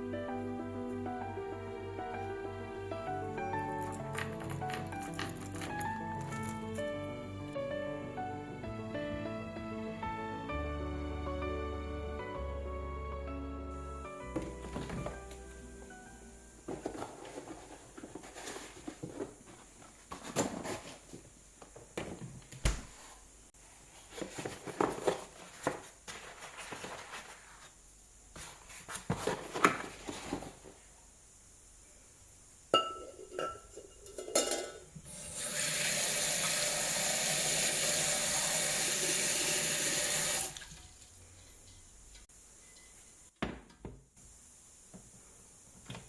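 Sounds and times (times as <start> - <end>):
dishes and utensils clattering: 32.8 - 34.9.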